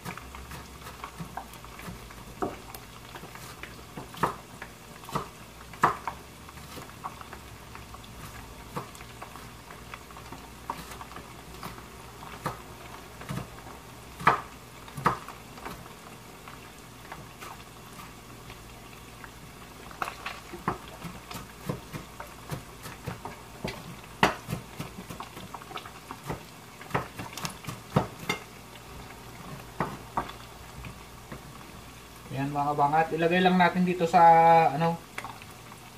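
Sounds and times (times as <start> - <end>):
knife chopping on wooden board: 5.1 - 6.1, 14.2 - 15.2, 26.2 - 28.4.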